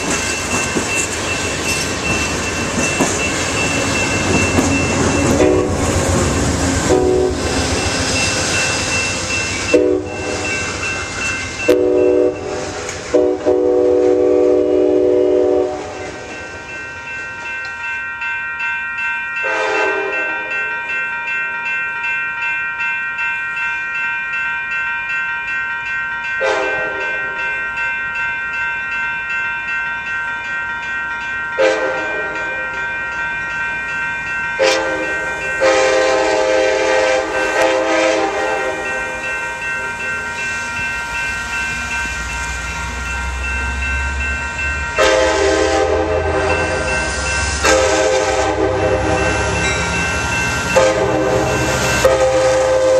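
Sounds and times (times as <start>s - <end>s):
diesel locomotive engine rumble: 0.0s - 17.8s, 34.2s - 52.9s
crossing bells ringing: 0.0s - 52.9s
locomotive air horn blasts: 5.4s - 5.8s, 6.9s - 7.5s, 9.7s - 10.4s, 11.7s - 16.0s, 19.5s - 20.2s, 26.4s - 27.1s, 34.6s - 35.0s, 35.6s - 38.8s, 45.0s - 46.7s, 47.6s - 49.2s, 50.8s - 52.9s.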